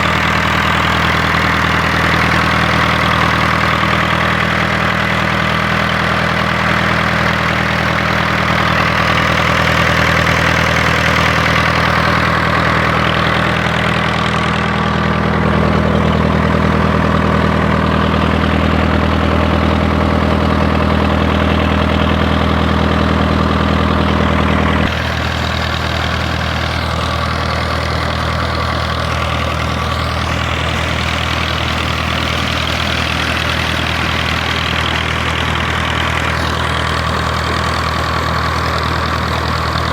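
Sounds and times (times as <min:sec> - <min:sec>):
diesel engine running steadily: 0:00.0 - 0:39.9.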